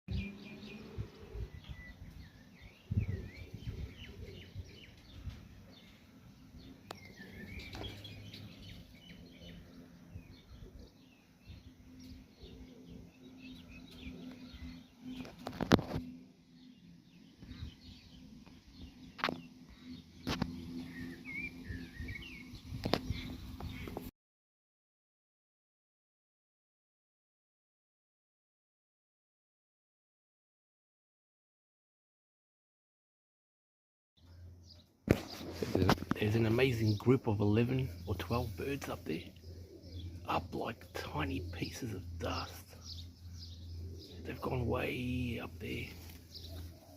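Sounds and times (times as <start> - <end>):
small birds chirping: 0.1 - 24.1, 34.2 - 46.9.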